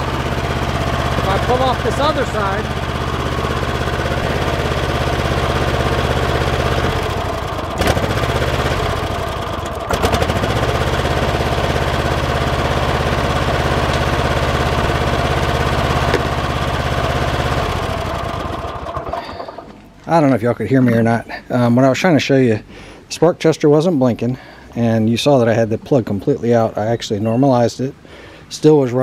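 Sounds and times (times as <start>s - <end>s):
engine running rough: 0.0s - 20.1s.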